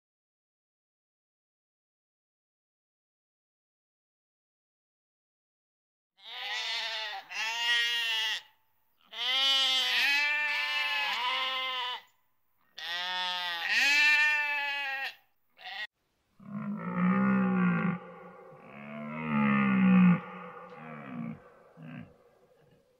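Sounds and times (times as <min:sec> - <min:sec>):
farm animal bleating: 0:06.2 - 0:12.1, 0:12.7 - 0:22.8
lower-pitched sound: 0:16.7 - 0:22.9.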